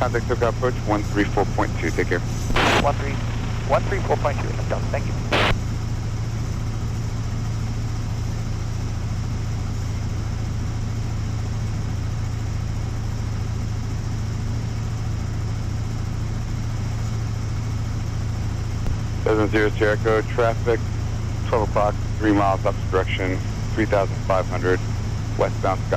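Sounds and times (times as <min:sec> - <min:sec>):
airplane engine and propeller droning: 0:00.0 - 0:25.9.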